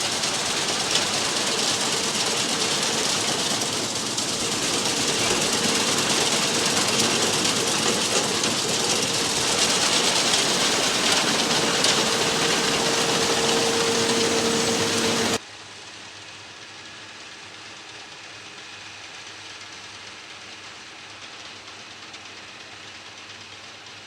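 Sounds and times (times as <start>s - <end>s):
straw baler working: 0.0s - 15.4s
tractor engine running: 0.0s - 15.4s.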